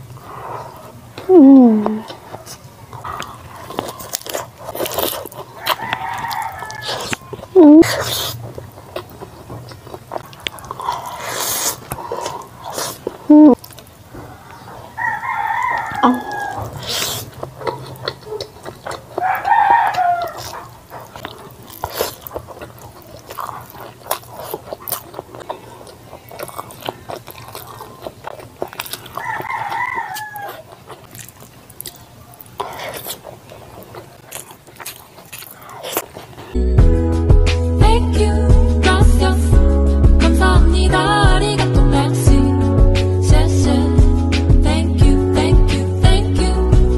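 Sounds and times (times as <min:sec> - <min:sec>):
wet chewing and lip-smacking: 0:00.0 - 0:36.6
rooster crowing: 0:05.6 - 0:07.4, 0:14.3 - 0:16.8, 0:19.2 - 0:20.7, 0:29.1 - 0:30.7.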